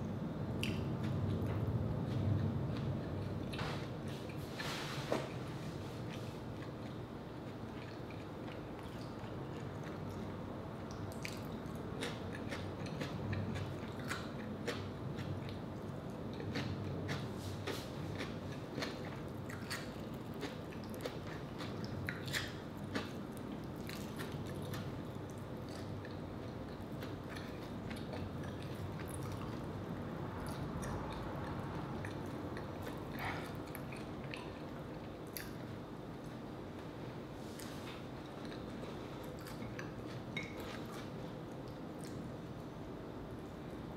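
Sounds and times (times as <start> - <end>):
wet chewing with mouth clicks: 6.0 - 29.7, 30.4 - 36.4, 37.5 - 42.3.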